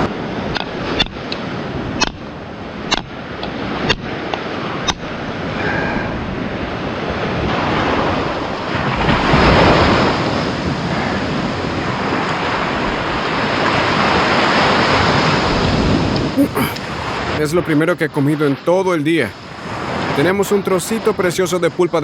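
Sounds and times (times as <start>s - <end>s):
wind buffeting microphone: 0.0s - 17.3s
waves washing onto beach: 0.0s - 17.4s, 19.1s - 21.2s.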